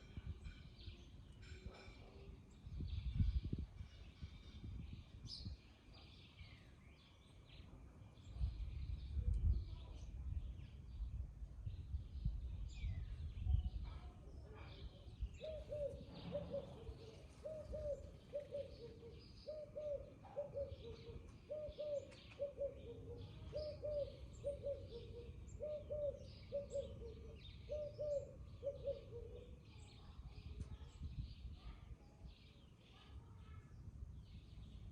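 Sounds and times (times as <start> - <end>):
small birds chirping: 2.4 - 34.9
dove cooing: 15.4 - 29.6.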